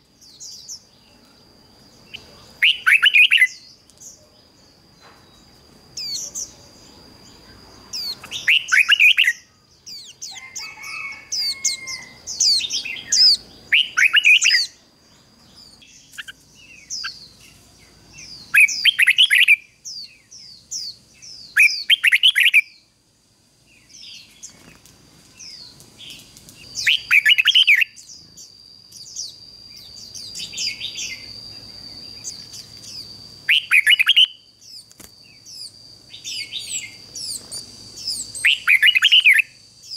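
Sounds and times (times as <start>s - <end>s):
bulbul singing warbled phrases: 0.1s - 4.8s, 5.9s - 22.9s, 25.4s - 39.9s
steady high-pitched tone: 27.0s - 39.9s.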